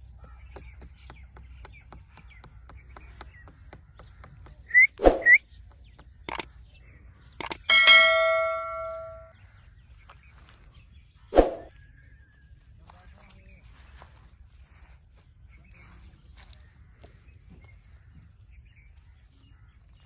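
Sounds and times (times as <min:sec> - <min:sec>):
sharp clicks: 0:07.4 - 0:09.2
small metal bell ringing: 0:07.4 - 0:09.3.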